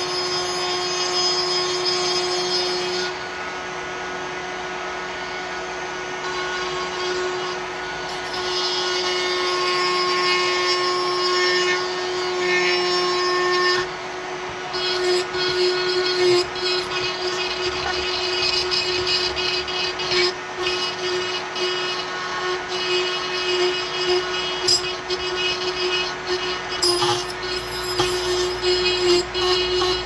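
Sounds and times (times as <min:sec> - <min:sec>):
electric grinder motor hum: 0:04.0 - 0:30.0
grinding hiss on wood: 0:14.8 - 0:30.0.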